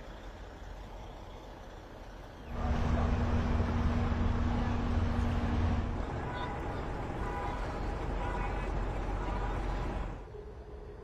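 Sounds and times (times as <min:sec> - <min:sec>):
vehicle engine rumble: 0:00.0 - 0:11.0
steady hum: 0:02.5 - 0:07.0.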